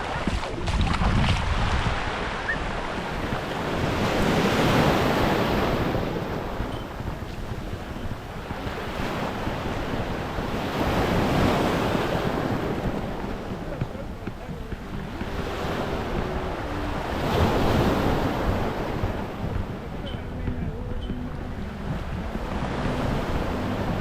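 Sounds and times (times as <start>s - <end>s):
small waves washing onto beach: 0.0s - 24.0s
wind buffeting microphone: 0.0s - 24.0s.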